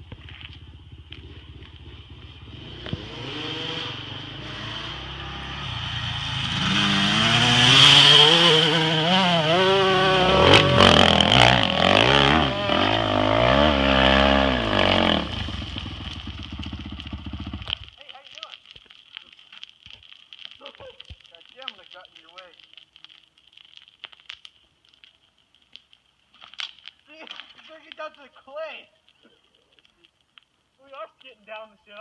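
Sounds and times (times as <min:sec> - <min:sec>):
dirt bike engine revving: 0:00.2 - 0:17.9.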